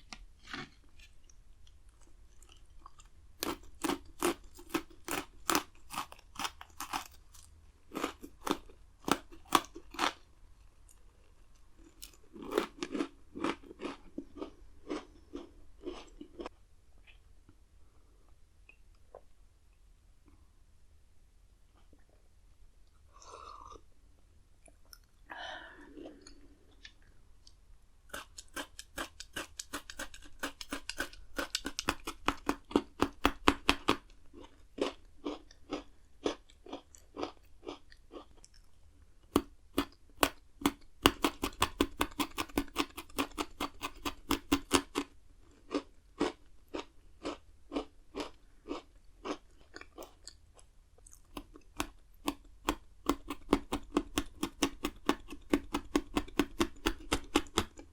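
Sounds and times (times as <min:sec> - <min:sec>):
biscuit sticks crunching: 0:00.1 - 0:10.2, 0:10.8 - 0:16.5, 0:28.1 - 0:38.6.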